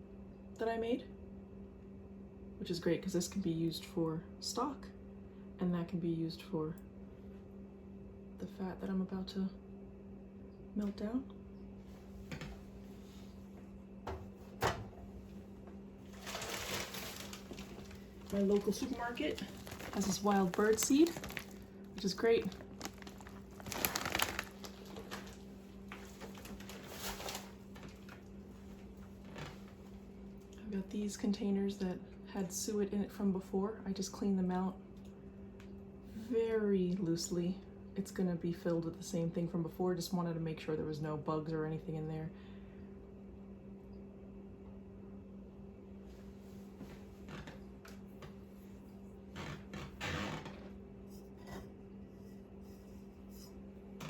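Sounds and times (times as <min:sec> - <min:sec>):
steady low hum: 0:00.0 - 0:54.0
kitchen items clattering: 0:16.0 - 0:25.4
bag rustling and handling: 0:16.0 - 0:28.1.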